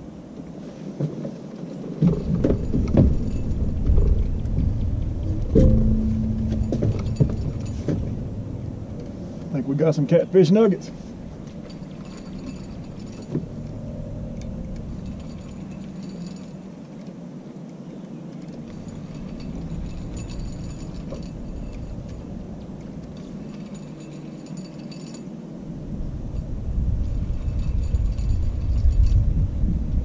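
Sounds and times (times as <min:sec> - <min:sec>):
low rumble: 0:02.1 - 0:16.7, 0:18.6 - 0:24.1.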